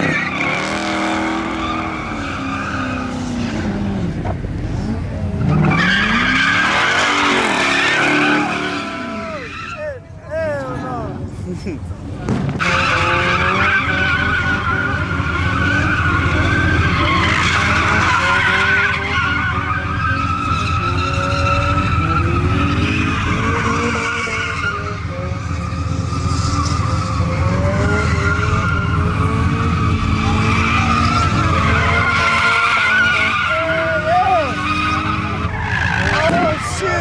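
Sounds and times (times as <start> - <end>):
truck engine revving: 0.0 - 9.4, 11.8 - 37.0
tyres squealing: 5.4 - 10.0, 12.6 - 37.0.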